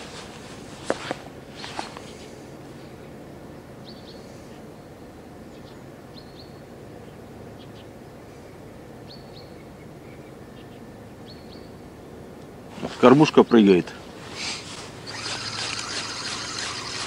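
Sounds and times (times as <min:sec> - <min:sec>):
low outdoor background rumble: 0:00.0 - 0:17.0
small bird chirping: 0:14.5 - 0:17.0.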